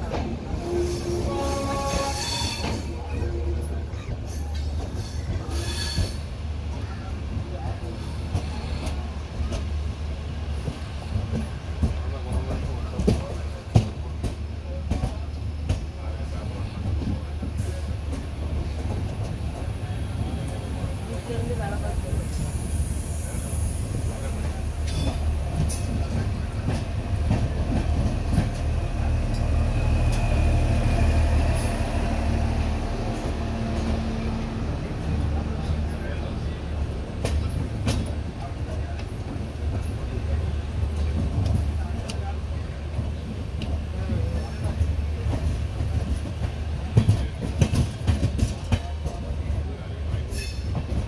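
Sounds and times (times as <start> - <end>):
train rumbling on track: 0.0 - 51.0
faint high wheel squeal: 4.0 - 6.2.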